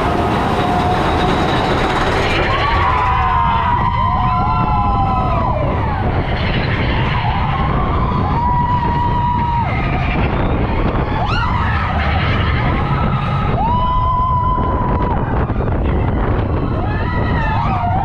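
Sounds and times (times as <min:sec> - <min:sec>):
high metallic squeal: 0:00.0 - 0:03.9, 0:05.4 - 0:14.9
roller coaster wheels rumbling: 0:00.0 - 0:18.0.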